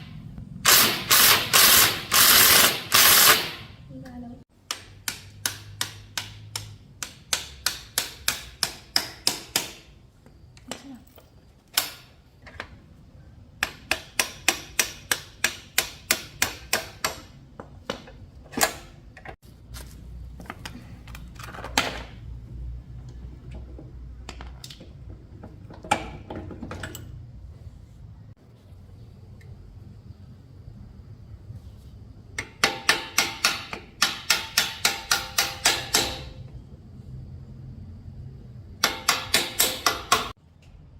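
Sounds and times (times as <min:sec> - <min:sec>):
sharp metallic taps: 0:04.6 - 0:09.9.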